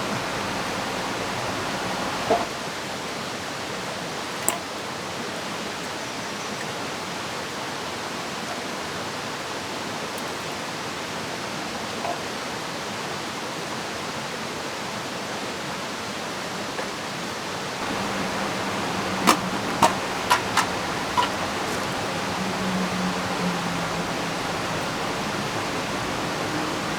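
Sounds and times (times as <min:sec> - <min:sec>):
river flowing: 0:00.0 - 0:03.2, 0:16.1 - 0:26.9
rain: 0:00.0 - 0:26.9.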